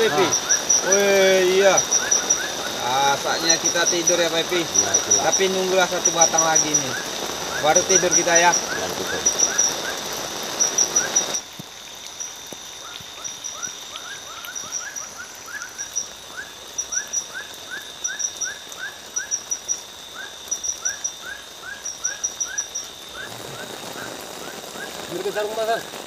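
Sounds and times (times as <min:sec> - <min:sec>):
loud hiss: 0:00.0 - 0:14.4, 0:22.4 - 0:26.0
frogs rising chirps: 0:00.0 - 0:26.0
high insect whine: 0:00.0 - 0:26.0.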